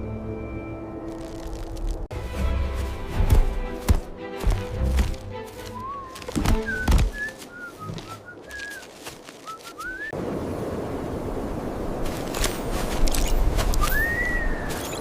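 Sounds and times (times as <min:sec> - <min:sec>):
chirping gliding whistles: 0:05.8 - 0:10.2, 0:13.8 - 0:15.0
rising and falling whistle: 0:13.8 - 0:15.0.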